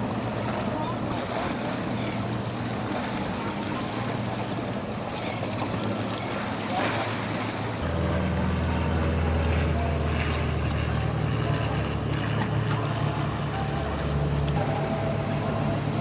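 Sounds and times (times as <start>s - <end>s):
boat engines running: 0.0s - 16.0s
surf: 0.0s - 16.0s
wind: 0.0s - 16.0s.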